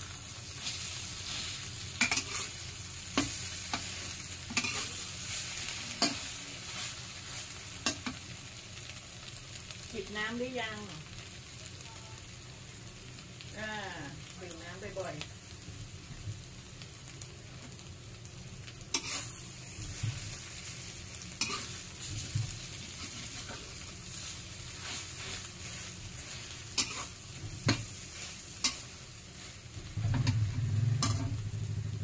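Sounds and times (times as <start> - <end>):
egg sizzling in oil: 0.0 - 32.0
metal spatula scraping wok: 0.6 - 8.2, 18.9 - 20.3, 21.4 - 31.5
low hum: 29.8 - 32.0.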